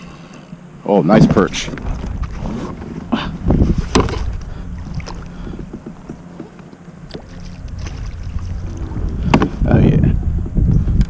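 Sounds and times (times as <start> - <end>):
water and wind around hull: 0.0 - 11.0.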